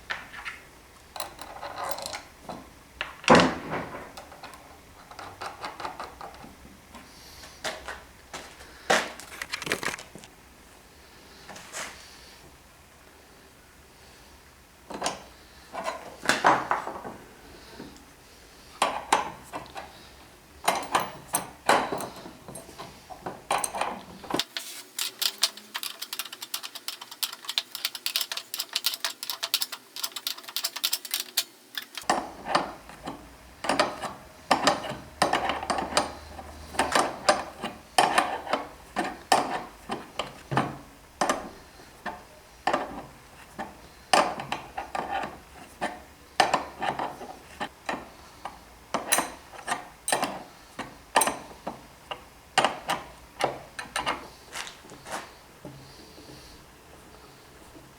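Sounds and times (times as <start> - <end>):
rapid crisp clicking: 24.4 - 32.1.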